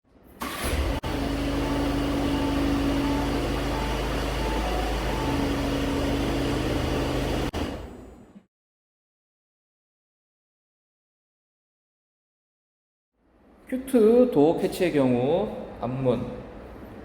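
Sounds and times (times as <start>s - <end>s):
steady mechanical hum: 0.1s - 8.4s, 13.3s - 17.0s.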